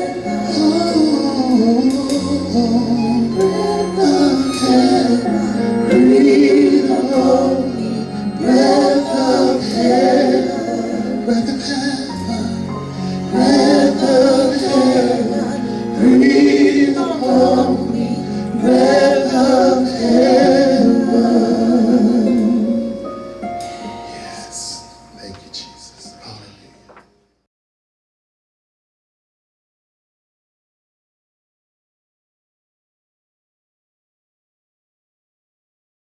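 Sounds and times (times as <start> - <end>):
person singing gospel: 0.0 - 26.6
keyboard chords: 0.0 - 27.1.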